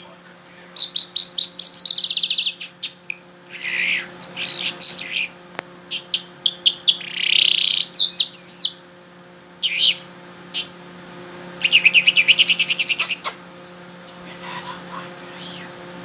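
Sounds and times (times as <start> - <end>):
songbird singing: 0.8 - 8.8, 9.6 - 10.8, 11.6 - 14.1.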